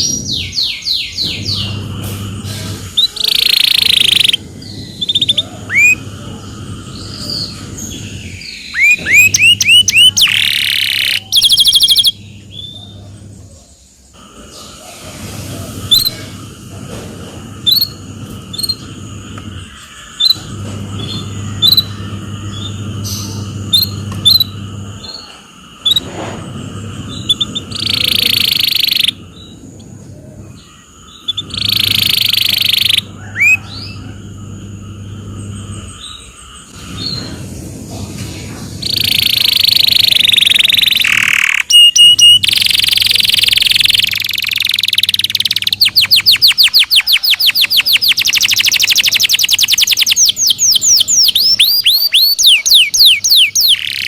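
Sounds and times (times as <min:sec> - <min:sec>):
canary singing: 0:00.0 - 0:13.7, 0:15.9 - 0:37.4, 0:38.8 - 0:54.0
low steady hum: 0:01.2 - 0:47.0.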